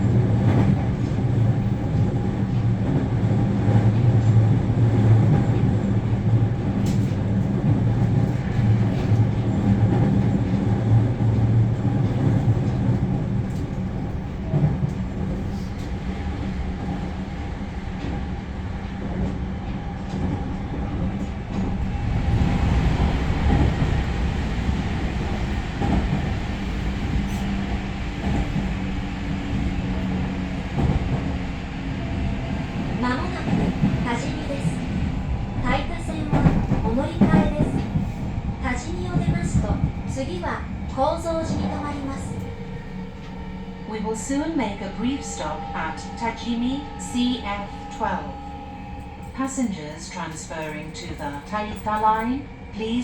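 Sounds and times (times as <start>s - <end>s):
train cabin hum: 0.0s - 53.0s
wheel-on-rail rumble: 19.0s - 43.6s.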